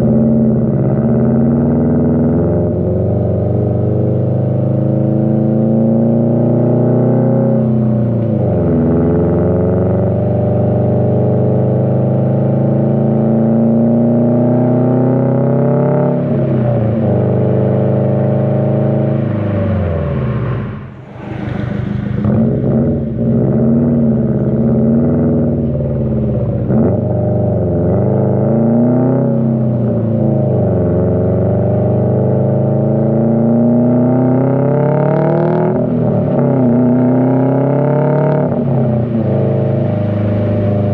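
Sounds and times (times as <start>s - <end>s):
car engine accelerating through gears: 0.0s - 40.9s.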